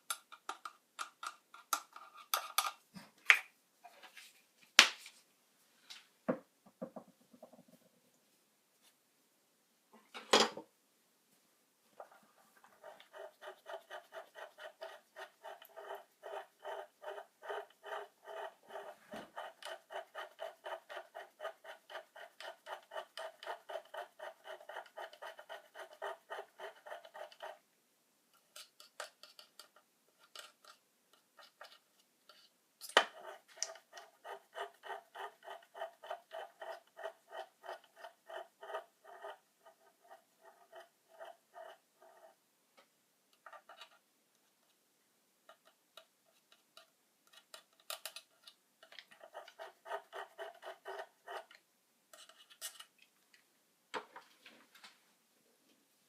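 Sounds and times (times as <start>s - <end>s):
rhythmic scraping strokes: 12.8s - 27.6s.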